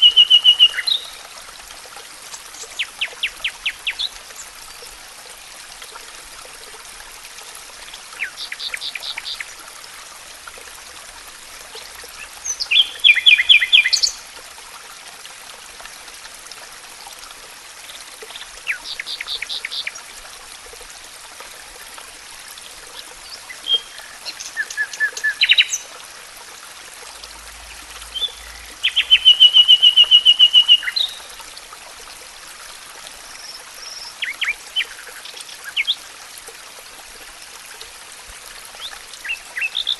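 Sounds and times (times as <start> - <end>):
songbirds trilling: 23.3 - 25.9, 27.6 - 31.2.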